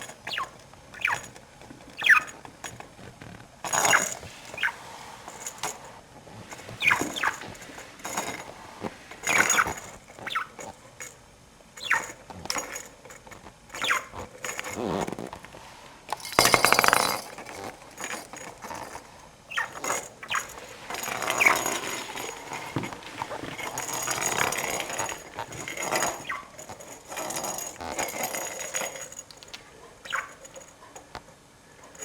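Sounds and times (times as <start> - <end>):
budgerigar chirping: 2.0 - 2.3, 30.0 - 30.4
rattling burst: 16.2 - 17.4.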